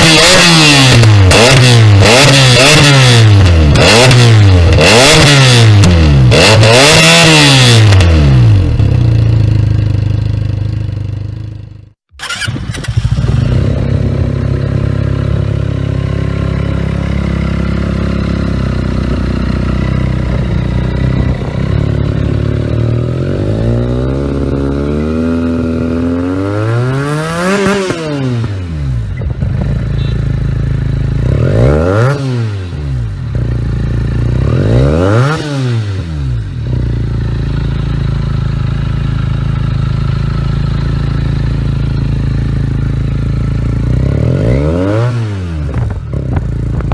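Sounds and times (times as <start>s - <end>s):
motorcycle revving: 0.0s - 46.9s
motorcycle idling: 8.4s - 24.0s, 28.9s - 31.3s, 33.0s - 34.4s, 36.2s - 44.2s.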